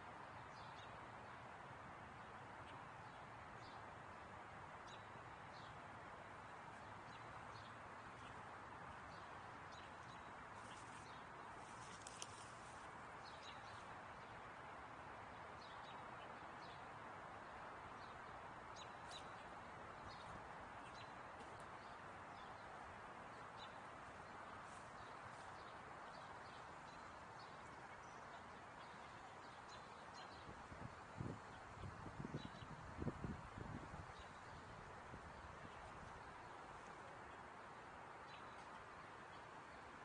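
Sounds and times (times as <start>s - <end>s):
steady background hiss: 0.0s - 40.0s.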